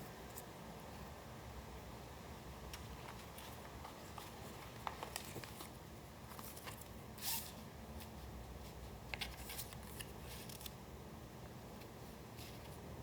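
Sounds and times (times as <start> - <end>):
paper rustling: 2.8 - 7.0, 8.0 - 10.8.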